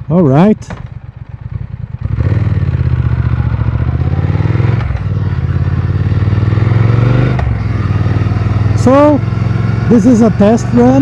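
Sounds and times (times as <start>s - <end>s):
motorcycle engine accelerating: 0.3s - 11.0s.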